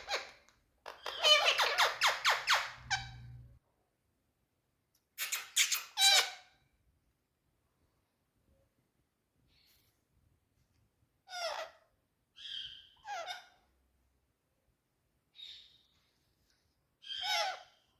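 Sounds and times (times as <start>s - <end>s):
parrot squawking: 0.0s - 3.3s, 12.4s - 13.6s, 17.1s - 17.8s.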